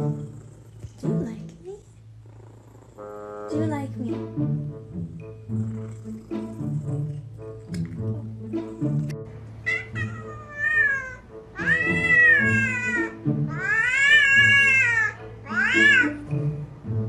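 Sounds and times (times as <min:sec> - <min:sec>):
background music: 0:00.0 - 0:01.8, 0:03.0 - 0:17.0
cat meowing: 0:08.7 - 0:16.2.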